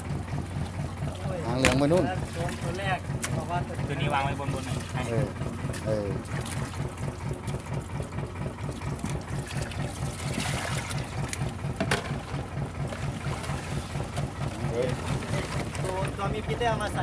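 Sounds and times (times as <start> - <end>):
boat engine idling: 0.0 - 17.0
rush of water: 8.7 - 11.5.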